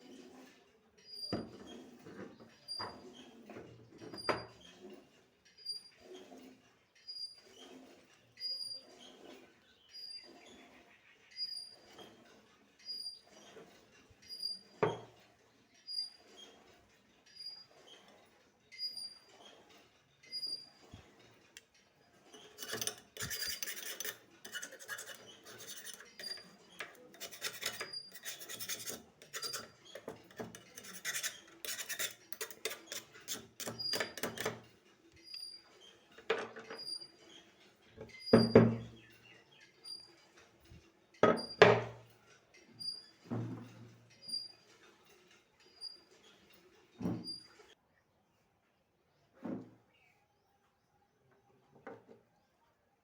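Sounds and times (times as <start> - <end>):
scraping and rubbing strokes: 22.2 - 37.6.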